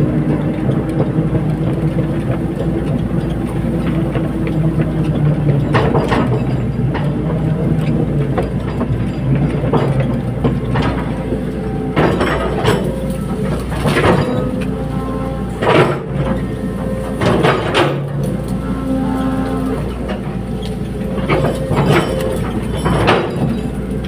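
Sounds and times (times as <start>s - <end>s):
excavator diesel engine running: 0.0s - 24.0s
sharp metallic clanks: 8.0s - 15.0s, 19.4s - 24.0s.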